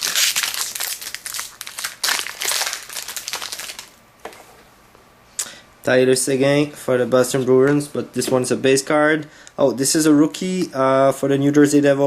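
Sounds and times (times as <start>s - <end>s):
trading cards crinkling: 0.0s - 4.0s.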